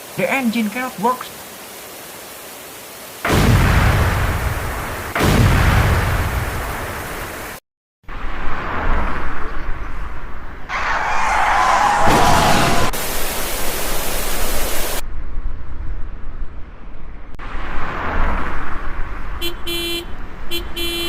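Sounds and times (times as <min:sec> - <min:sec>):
car horn honks: 0:19.4 - 0:21.0.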